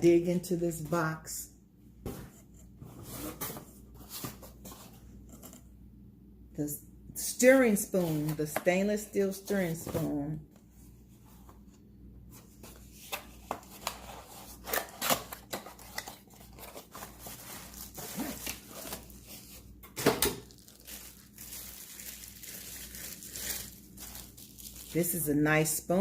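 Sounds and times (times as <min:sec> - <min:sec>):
packaging tearing and crinkling: 0:13.6 - 0:19.6, 0:20.3 - 0:25.0.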